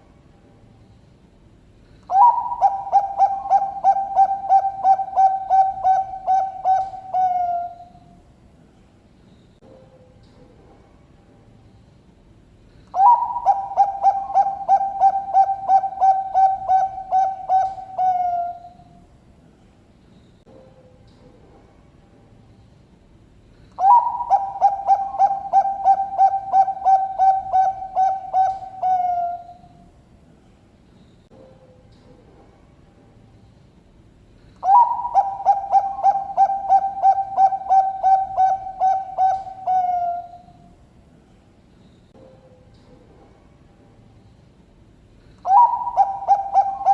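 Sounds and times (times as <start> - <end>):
dove cooing: 2.1 - 8.0, 12.9 - 18.9, 23.8 - 29.7, 34.6 - 40.6, 45.4 - 46.9.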